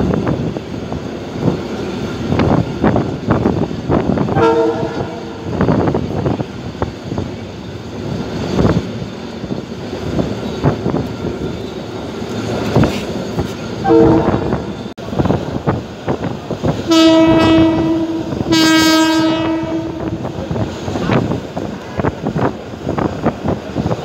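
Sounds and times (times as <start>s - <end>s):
train car rattling: 0.0s - 24.0s
train horn blast: 4.3s - 5.5s, 13.8s - 14.6s, 16.9s - 20.3s.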